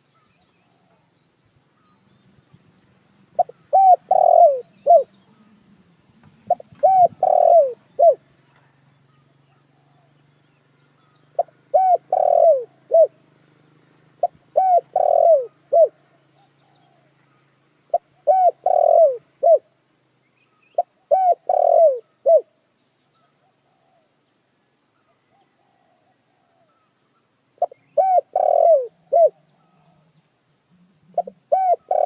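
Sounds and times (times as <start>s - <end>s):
dove cooing: 0.0s - 1.2s, 3.3s - 5.6s, 6.3s - 10.2s, 11.0s - 13.2s, 14.1s - 19.8s, 20.8s - 22.6s, 23.2s - 24.2s, 25.0s - 27.0s, 27.6s - 32.0s.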